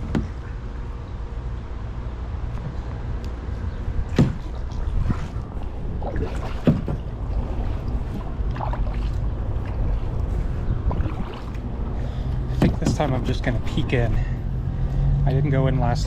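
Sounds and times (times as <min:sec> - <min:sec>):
steady low rumble: 0:00.0 - 0:16.0
paddle strokes splashing water: 0:04.1 - 0:13.7.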